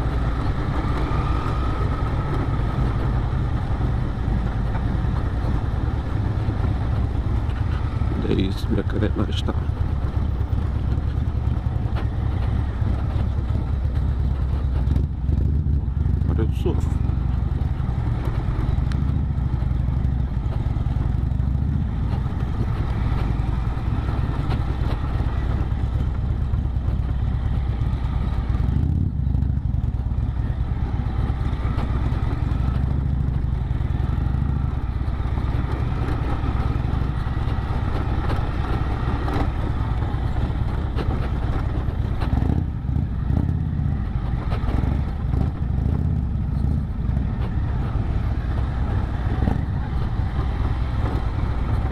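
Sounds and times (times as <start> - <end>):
motorcycle engine running: 0.0 - 51.9
road and wind noise: 0.0 - 51.9.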